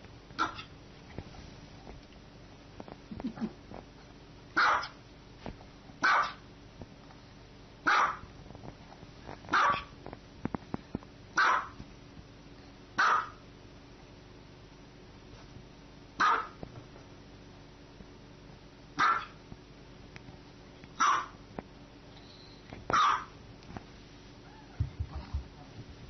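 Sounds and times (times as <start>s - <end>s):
small dog barking: 0.4s - 0.7s, 4.6s - 5.0s, 6.0s - 6.4s, 7.8s - 8.3s, 9.5s - 9.9s, 11.4s - 11.8s, 13.0s - 13.4s, 16.2s - 16.6s, 19.0s - 19.4s, 21.0s - 21.4s, 22.9s - 23.4s.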